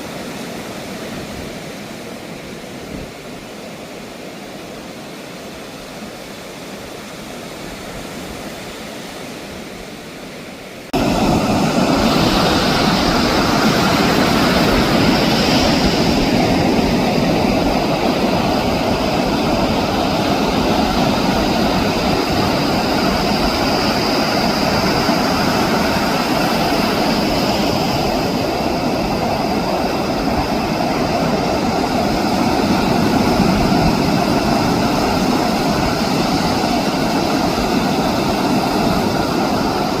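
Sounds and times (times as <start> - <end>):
ocean surf roaring: 0.0 - 40.0.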